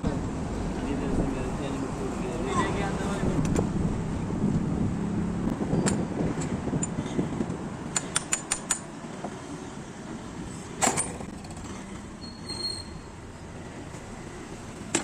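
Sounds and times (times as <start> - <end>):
low rumble: 3.2 - 7.4
tools tapping and clinking: 5.8 - 7.2, 7.9 - 9.4.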